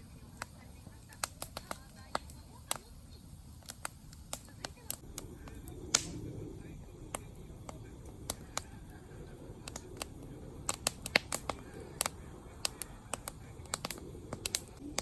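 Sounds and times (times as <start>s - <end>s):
campfire crackling and popping: 0.0s - 15.0s
low rumble of burning fire: 0.0s - 15.0s.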